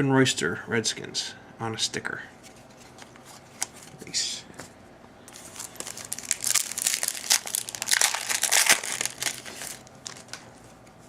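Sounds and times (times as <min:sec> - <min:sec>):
foil wrapper crinkling: 0:05.3 - 0:10.6.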